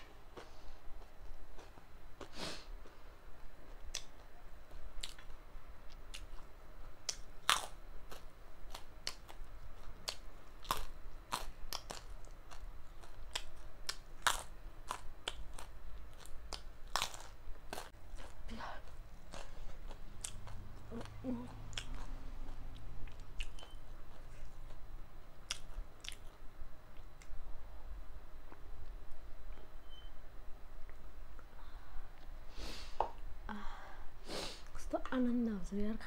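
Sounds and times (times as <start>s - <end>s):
chewing crunchy snack: 5.0s - 24.8s, 25.4s - 26.4s.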